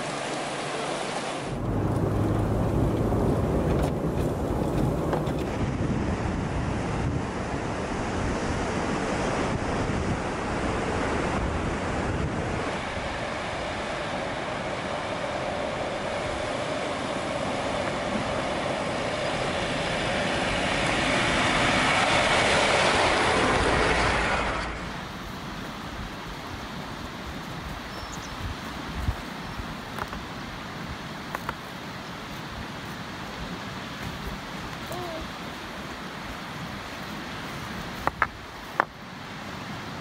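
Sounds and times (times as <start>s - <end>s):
wind rumble: 1.4s - 40.0s
vehicle rumble: 1.5s - 9.8s, 10.4s - 29.0s.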